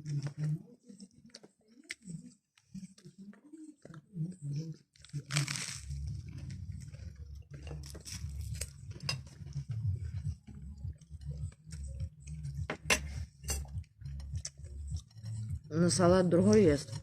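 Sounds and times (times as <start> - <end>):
chewing: 0.0 - 15.7
tableware clicking and clinking: 7.6 - 9.5, 12.6 - 14.4.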